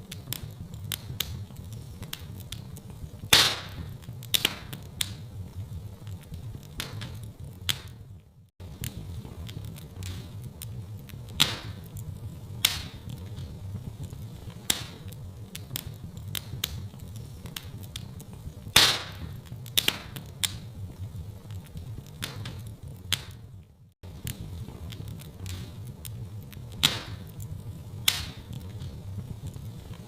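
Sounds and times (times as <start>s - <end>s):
low steady rumble: 0.0s - 30.0s
wood fire crackling and popping: 0.0s - 30.0s.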